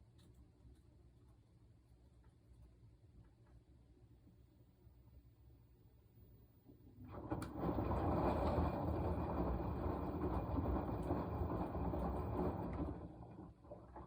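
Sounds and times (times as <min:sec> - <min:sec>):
washing machine churning rumble: 0:06.8 - 0:14.0.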